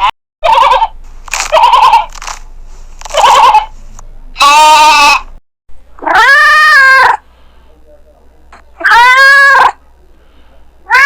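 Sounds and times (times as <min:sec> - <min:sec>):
livestock bleating: 0:00.4 - 0:00.9, 0:01.5 - 0:02.1, 0:04.4 - 0:05.2, 0:08.8 - 0:09.8.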